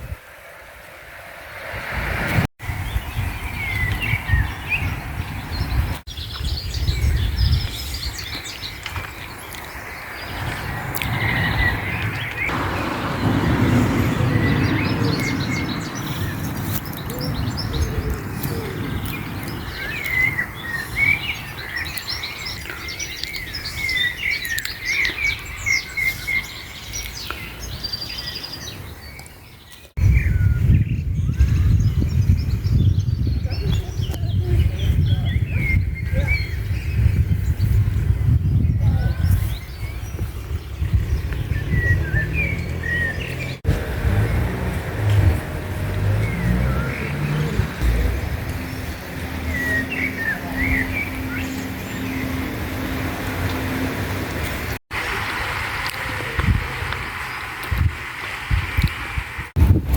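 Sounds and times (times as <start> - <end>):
small birds chirping and singing: 2.6 - 59.5.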